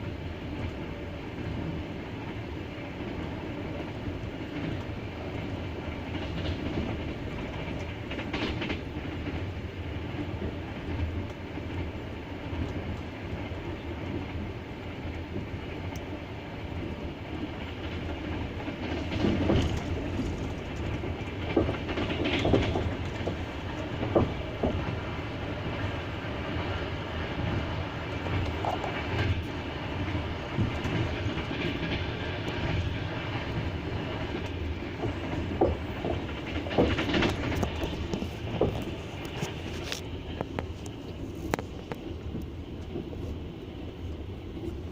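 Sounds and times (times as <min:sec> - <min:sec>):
train wheels clattering over rails: 0:00.0 - 0:44.9
wheels knocking over rail joints: 0:30.5 - 0:40.7.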